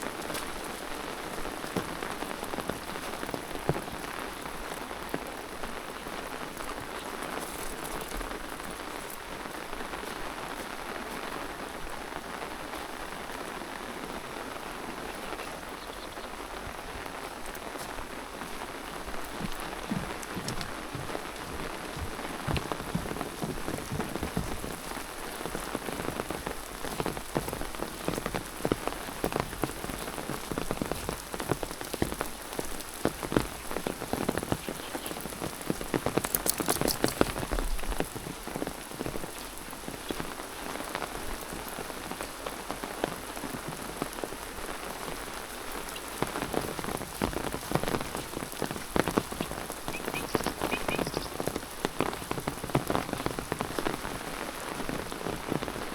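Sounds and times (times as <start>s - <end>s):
rain drops tapping: 0.0s - 55.9s
steady rain falling: 0.0s - 55.9s.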